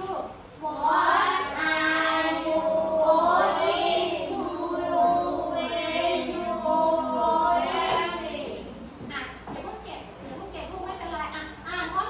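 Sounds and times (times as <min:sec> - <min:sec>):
children singing: 0:00.6 - 0:08.6.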